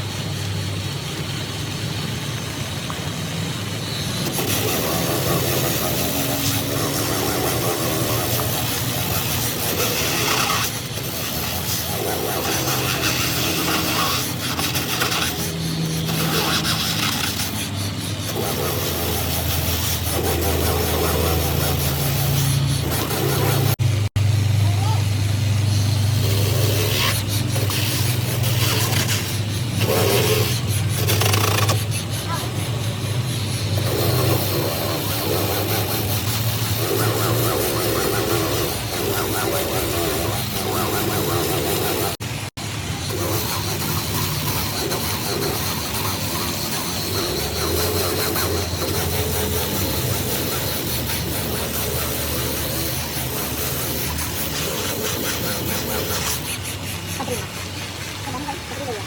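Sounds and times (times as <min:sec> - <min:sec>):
low mechanical hum: 0:00.0 - 0:59.0
scraping and rubbing: 0:04.2 - 0:23.8, 0:25.7 - 0:59.0.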